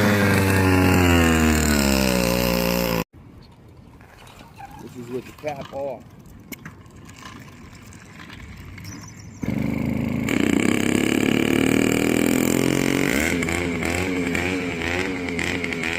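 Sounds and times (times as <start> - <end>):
two-stroke engine high-revving: 0.0 - 3.1, 9.3 - 15.9.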